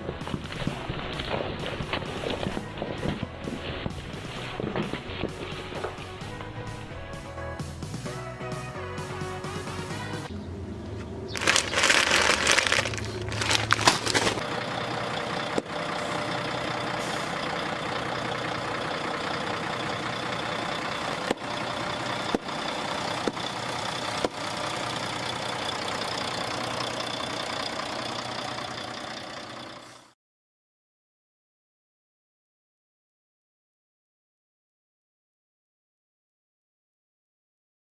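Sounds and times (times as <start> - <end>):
truck engine idling: 0.0 - 30.2.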